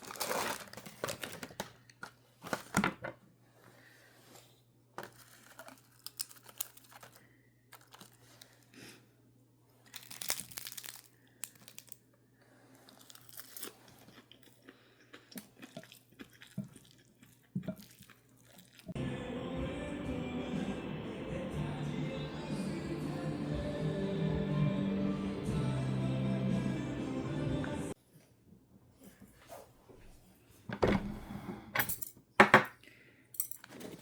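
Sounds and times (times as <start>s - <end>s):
packaging crinkling and tearing: 0.0s - 2.8s, 5.0s - 8.6s, 9.8s - 12.0s.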